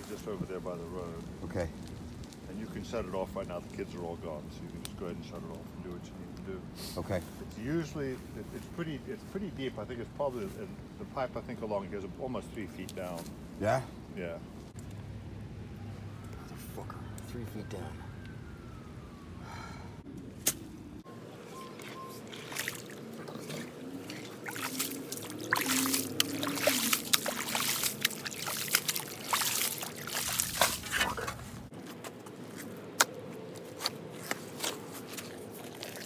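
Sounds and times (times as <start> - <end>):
squelching and scraping in mud: 20.3 - 36.0
water sloshing: 21.0 - 36.0.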